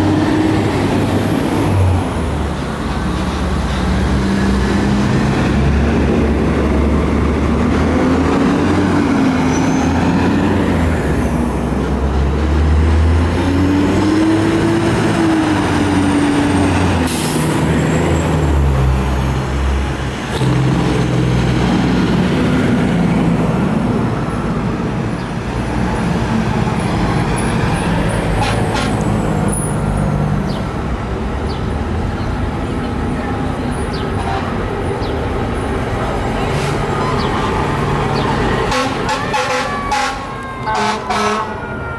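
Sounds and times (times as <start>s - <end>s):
diesel engines rumbling: 0.0s - 41.9s
air horn blasts: 38.7s - 41.9s.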